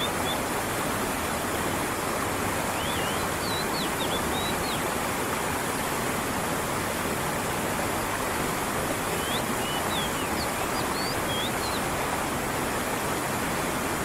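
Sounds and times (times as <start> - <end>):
creek water rushing over rocks: 0.0 - 14.0
bird chirping whistles: 2.8 - 4.8, 9.2 - 11.8.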